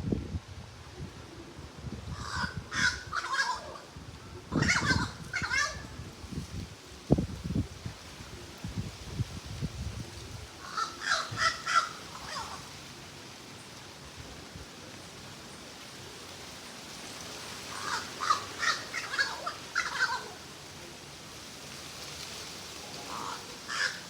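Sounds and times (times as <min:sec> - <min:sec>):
bird giving harsh calls: 0:04.6 - 0:05.8, 0:10.6 - 0:12.7, 0:17.7 - 0:20.4, 0:23.0 - 0:24.0.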